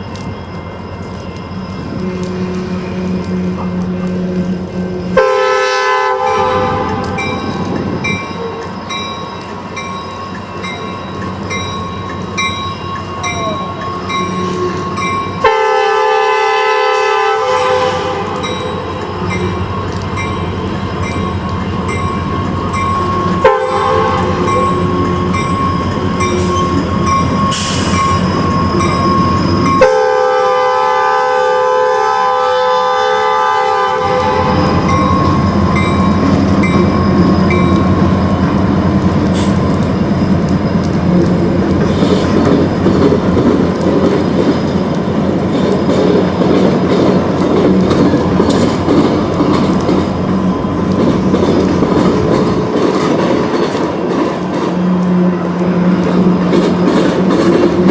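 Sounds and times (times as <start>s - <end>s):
locomotive air horn: 1.9s - 7.6s, 14.0s - 18.5s, 23.1s - 25.3s, 29.8s - 34.9s, 54.7s - 56.3s
train wheels clattering: 34.1s - 57.9s.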